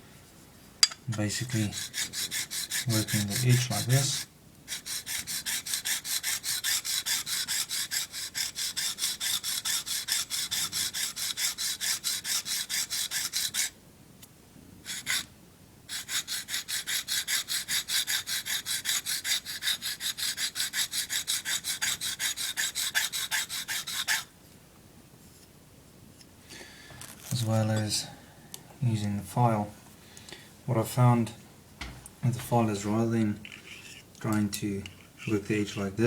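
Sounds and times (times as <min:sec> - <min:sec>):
knife rasping on sharpening plate: 0:00.8 - 0:13.7, 0:15.9 - 0:24.3, 0:33.4 - 0:34.1.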